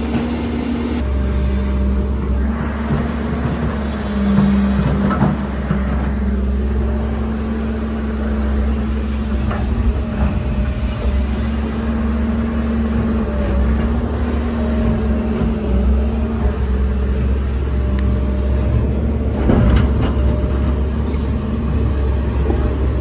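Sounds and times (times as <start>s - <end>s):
diesel engine of heavy machinery: 0.0s - 23.0s
machine knocks and clanks: 18.6s - 23.0s.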